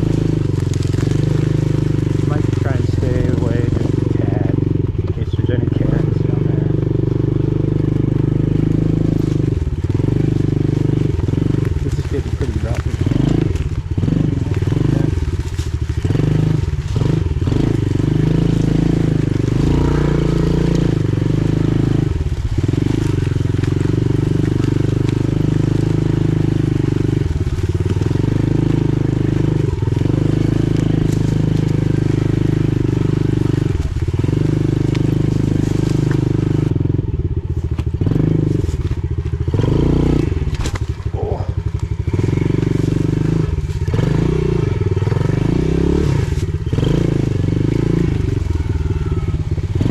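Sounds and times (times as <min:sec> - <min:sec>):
pit bike engine revving: 0:00.0 - 0:49.9.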